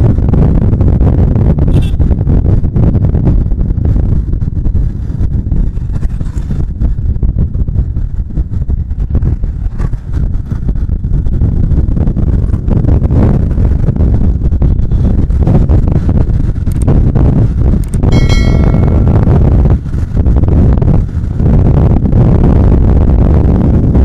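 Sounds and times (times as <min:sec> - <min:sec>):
wind buffeting microphone: 0:00.0 - 0:24.0
motorcycle engine rumble: 0:13.5 - 0:22.1.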